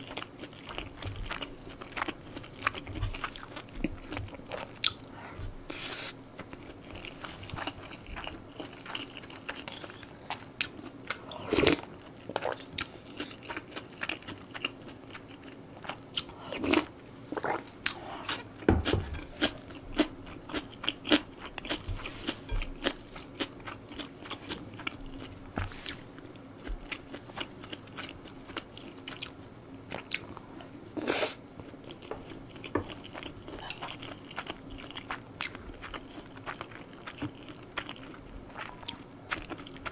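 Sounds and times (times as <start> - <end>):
chewing with wet mouth clicks: 31.8 - 39.9.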